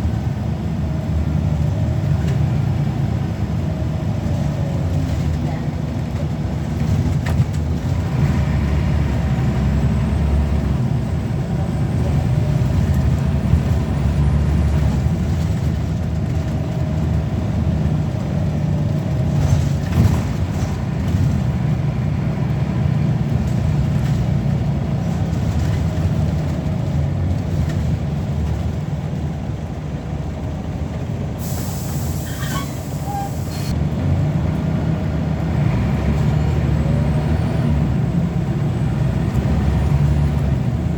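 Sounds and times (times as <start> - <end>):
bus diesel engine running: 0.0 - 40.9
air hiss: 31.4 - 33.7.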